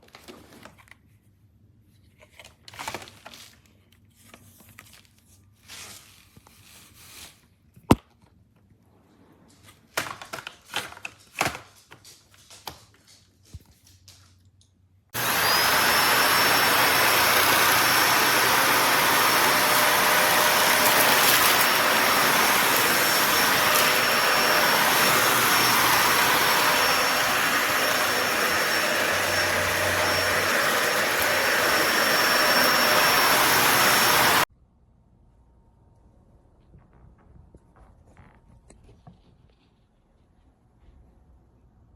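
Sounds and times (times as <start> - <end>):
vacuum cleaner motor whine: 15.2 - 34.5.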